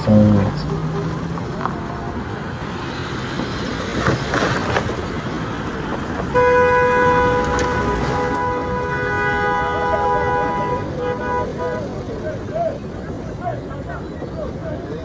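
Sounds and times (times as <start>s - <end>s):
road traffic noise: 0.0s - 15.0s
vehicle horn honking: 6.3s - 12.0s.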